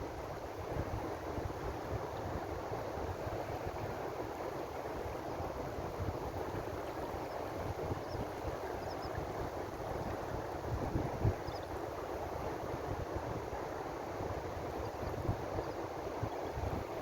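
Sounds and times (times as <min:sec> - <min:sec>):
wind buffeting microphone: 0:05.5 - 0:17.0.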